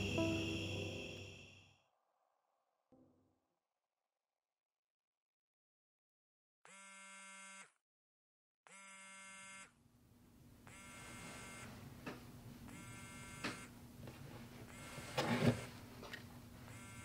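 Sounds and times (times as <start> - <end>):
electronic buzzer pulses: 0.0 - 1.7, 6.7 - 7.8, 8.7 - 9.7, 10.7 - 11.7, 12.7 - 13.7, 16.7 - 17.0.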